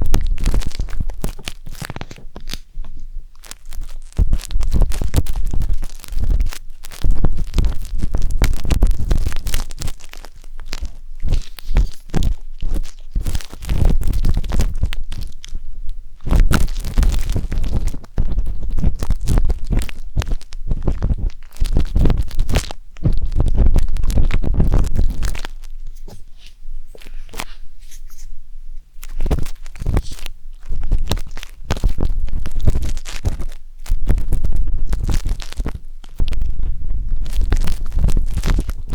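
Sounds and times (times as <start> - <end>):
wooden skewer scraping microphone: 10.8 - 15.4, 16.3 - 38.9
deep rumbling thumps: 16.2 - 25.5.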